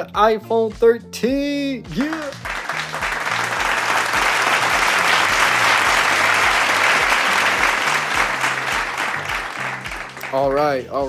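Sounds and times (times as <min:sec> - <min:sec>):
crowd applause: 0:01.9 - 0:10.6.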